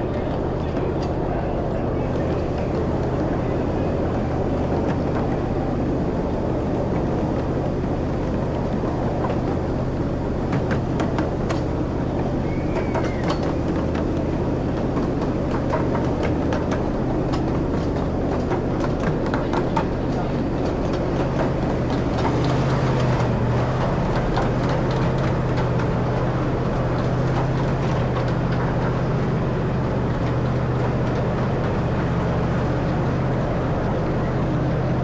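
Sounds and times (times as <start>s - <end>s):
low engine hum: 0.0s - 35.0s
ride-on train rumbling on track: 0.0s - 35.0s
sharp clicks and clacks: 6.6s - 33.2s.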